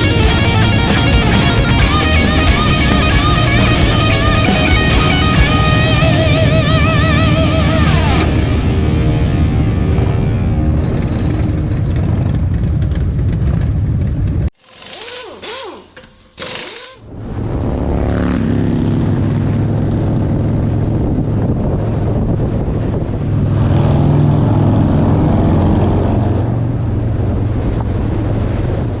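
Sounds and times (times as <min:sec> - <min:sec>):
motorcycle engine accelerating: 0:00.0 - 0:27.8
road and wind noise: 0:00.0 - 0:29.0
short noisy bursts: 0:14.6 - 0:17.1.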